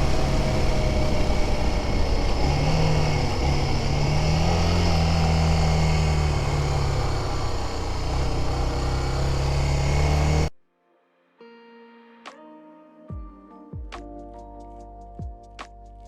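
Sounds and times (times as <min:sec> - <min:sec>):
motorcycle engine cruising: 0:00.0 - 0:10.5.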